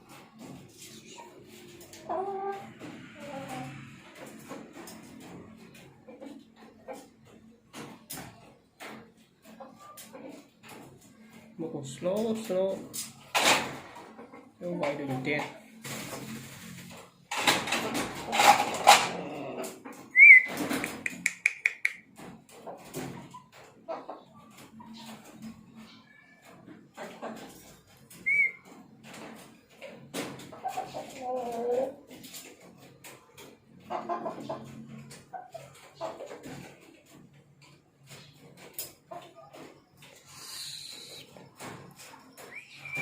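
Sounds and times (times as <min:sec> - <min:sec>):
chickens clucking: 0:00.0 - 0:43.0
sharp clicks: 0:20.8 - 0:22.0.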